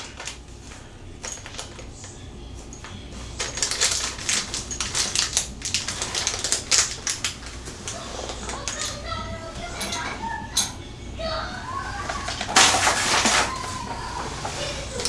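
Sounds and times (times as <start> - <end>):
small hard parts clicking and rattling: 0.0 - 15.0.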